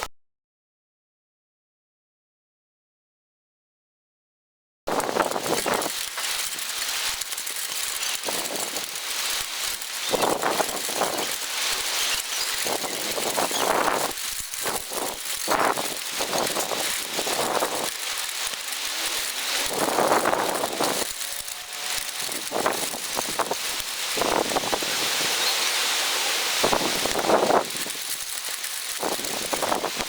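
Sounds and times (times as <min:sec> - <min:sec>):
rain falling: 0:05.1 - 0:30.0
storm wind gusting: 0:09.7 - 0:25.5, 0:26.4 - 0:28.1.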